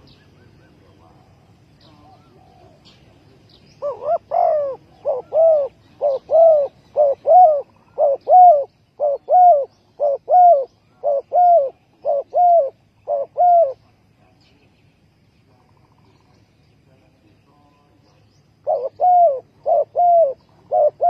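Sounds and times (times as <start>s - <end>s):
dove cooing: 0.0s - 13.9s, 18.6s - 21.0s.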